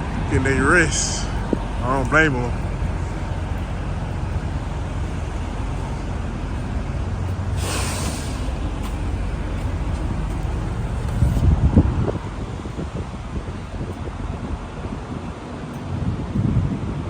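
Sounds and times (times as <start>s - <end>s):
diesel truck idling: 0.0s - 16.4s
air brake hiss: 7.5s - 9.4s.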